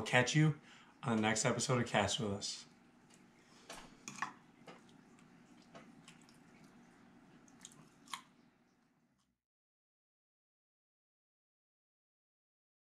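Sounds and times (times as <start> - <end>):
person chewing food: 3.1 - 8.9.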